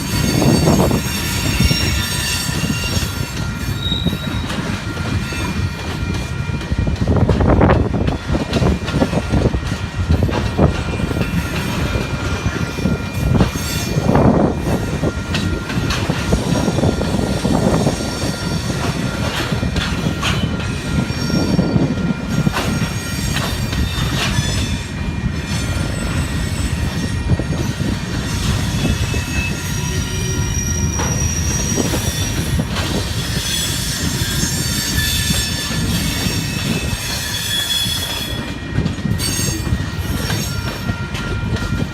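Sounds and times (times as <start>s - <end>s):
high-pitched wheel squeal: 0.0s - 5.7s, 25.5s - 41.9s
freight train rumble: 0.0s - 41.9s
train wheel clatter: 0.0s - 41.9s.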